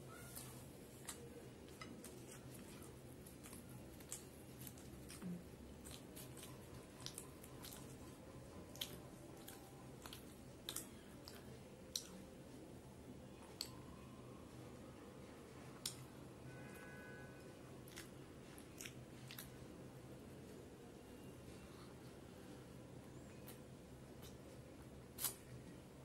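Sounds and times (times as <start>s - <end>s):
close chewing with mouth smacks: 0.2s - 12.6s, 17.8s - 20.4s, 23.3s - 25.7s.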